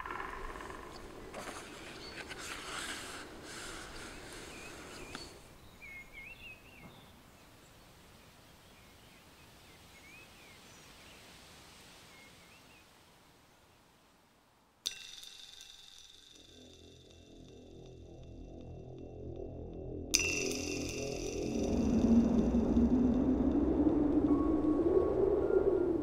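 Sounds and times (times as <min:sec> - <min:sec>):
birds warbling chirps: 0:00.0 - 0:11.0.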